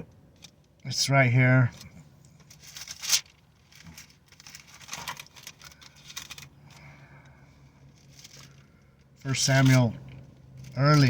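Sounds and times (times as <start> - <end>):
book pages rustling: 2.6 - 6.5.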